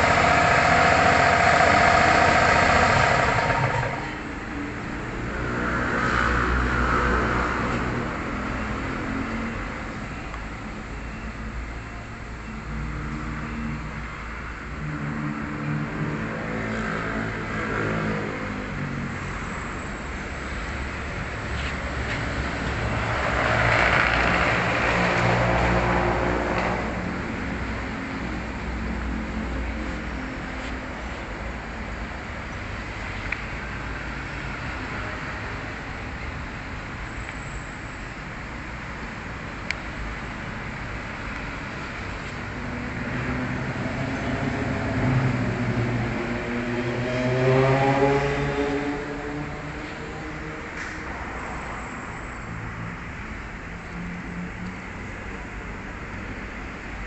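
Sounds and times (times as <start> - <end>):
vehicle engine running: 0.0 - 4.5.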